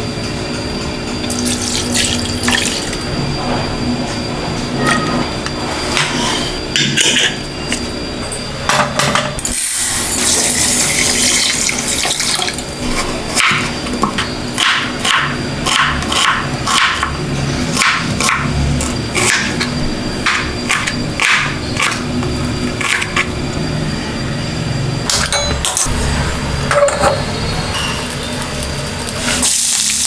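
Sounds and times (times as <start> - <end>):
water running from a tap: 1.3 - 3.0, 9.8 - 12.6, 29.5 - 30.0.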